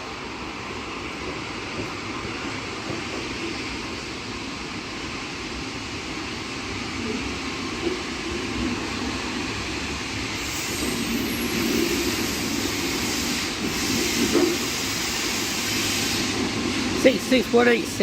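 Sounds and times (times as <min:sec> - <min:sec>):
diesel locomotive rumbling: 0:05.6 - 0:18.0.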